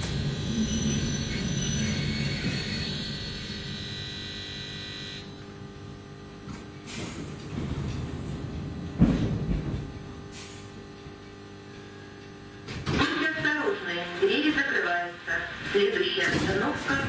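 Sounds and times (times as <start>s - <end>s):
electric train drive whine: 0.0s - 12.8s
heavy thump: 7.1s - 10.0s.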